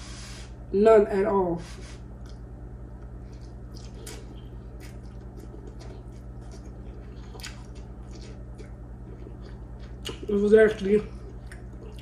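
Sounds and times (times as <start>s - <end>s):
low hum: 0.0s - 12.0s
person chewing noodles: 3.0s - 12.0s.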